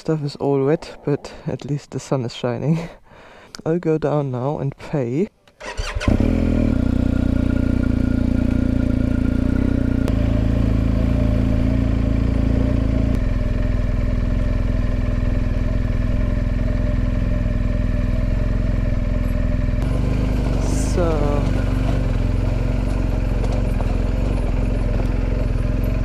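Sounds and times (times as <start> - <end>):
motorcycle engine idling: 5.6 - 26.0.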